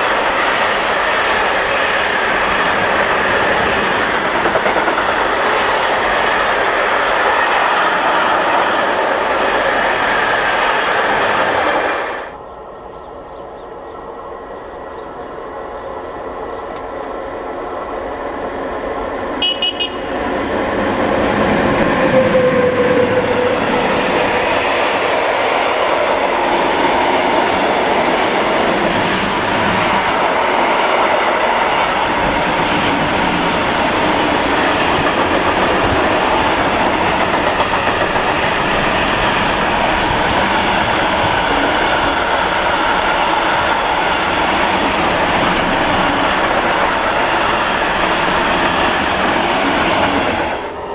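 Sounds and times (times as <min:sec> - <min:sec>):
rolling rumble of train cars: 0:00.0 - 0:50.9
train passing: 0:00.0 - 0:50.9
train horn toots: 0:19.4 - 0:20.2.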